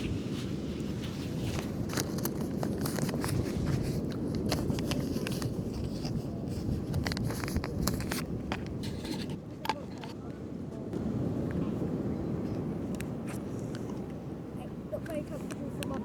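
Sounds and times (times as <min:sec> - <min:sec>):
sand being scraped and patted: 0:00.0 - 0:09.9.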